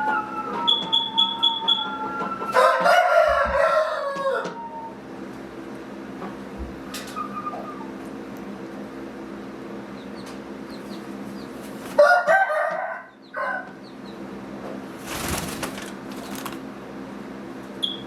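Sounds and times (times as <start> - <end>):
rooster crowing: 1.8 - 5.0, 11.9 - 13.8
rustling burst: 15.0 - 16.6.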